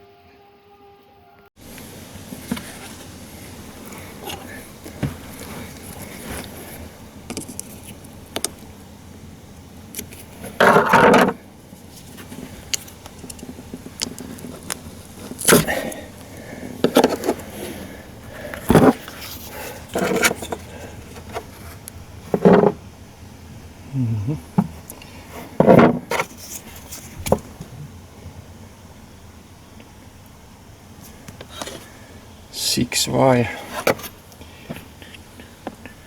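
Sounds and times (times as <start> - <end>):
car parts scraping: 1.6 - 8.6, 10.0 - 22.8, 24.5 - 27.7, 31.0 - 32.0, 33.5 - 35.9.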